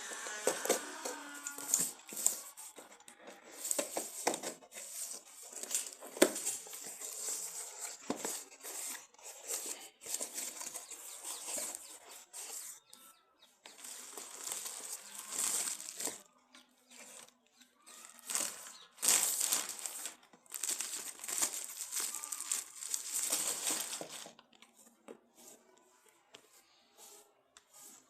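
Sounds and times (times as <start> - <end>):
plastic wrap and cardboard rustling: 0.0 - 12.9, 13.6 - 28.0.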